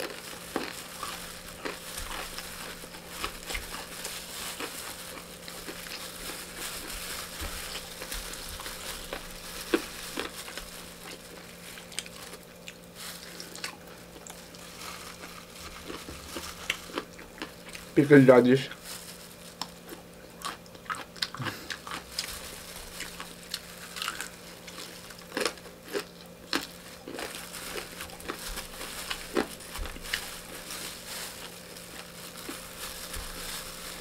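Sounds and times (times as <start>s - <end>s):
plastic glove clicks and crinkles: 0.0s - 13.6s, 14.2s - 19.9s, 21.8s - 34.0s
person chewing: 0.0s - 18.0s, 19.4s - 34.0s
low steady hum: 0.0s - 34.0s.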